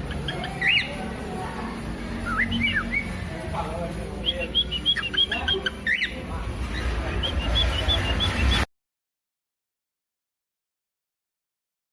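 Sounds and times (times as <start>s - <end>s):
parrots chirping and whistling: 0.0s - 1.2s, 2.2s - 3.3s, 4.1s - 8.7s.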